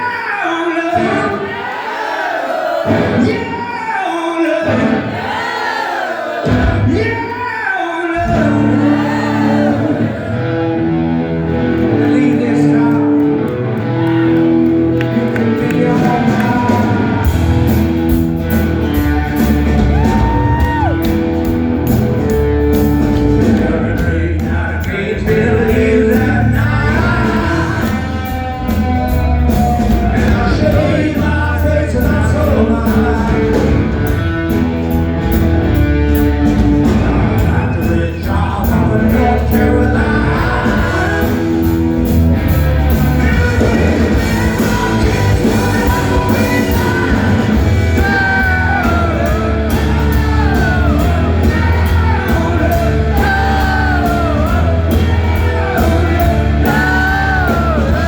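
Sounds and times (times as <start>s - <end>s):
rock song with singing: 0.0s - 58.0s
drum and cymbal hits: 40.4s - 58.0s.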